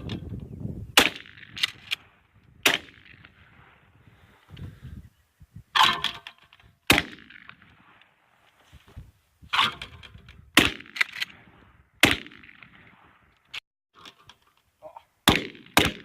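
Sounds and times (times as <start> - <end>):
gunshots: 1.0 - 3.8, 6.9 - 8.0, 10.6 - 13.1, 15.2 - 16.0.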